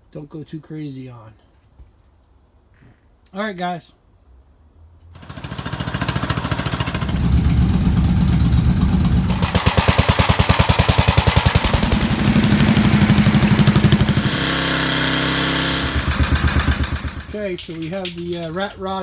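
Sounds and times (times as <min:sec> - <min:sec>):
small tractor engine putting: 0:05.2 - 0:18.8.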